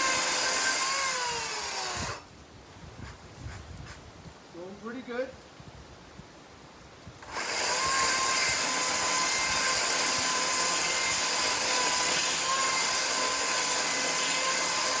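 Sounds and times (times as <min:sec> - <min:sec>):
electric chainsaw cutting wood: 0:00.0 - 0:02.2, 0:07.2 - 0:15.0.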